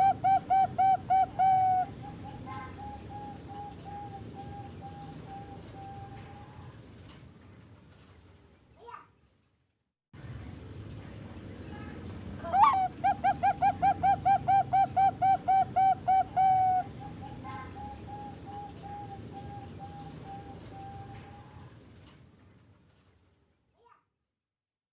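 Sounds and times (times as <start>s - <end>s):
dove cooing: 0.0s - 6.8s, 12.4s - 21.7s.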